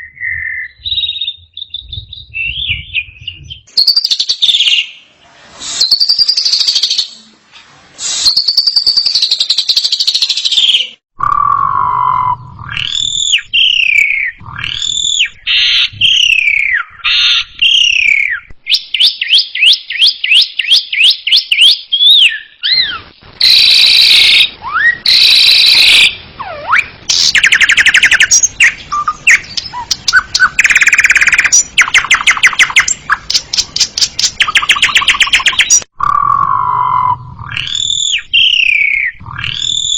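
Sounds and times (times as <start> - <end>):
starling singing varied song: 23.4 - 35.8.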